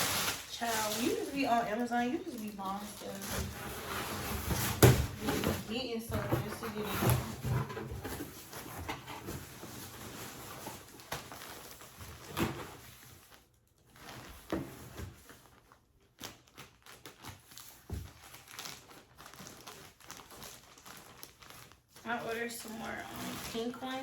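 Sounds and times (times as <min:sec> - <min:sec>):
packages rustling: 0:00.0 - 0:24.0
packages knocking: 0:02.8 - 0:09.6.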